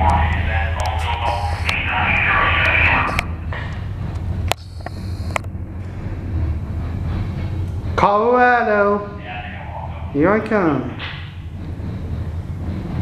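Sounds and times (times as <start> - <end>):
freight train rumbling past: 0.0 - 13.0.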